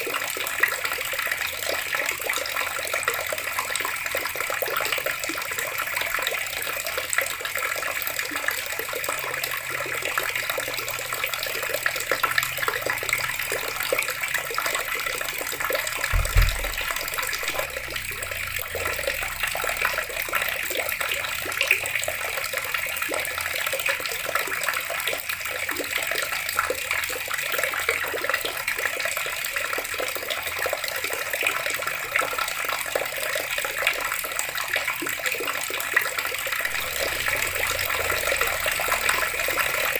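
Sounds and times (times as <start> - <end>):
tap water running and splashing: 0.0 - 39.9
low thump: 16.1 - 19.0.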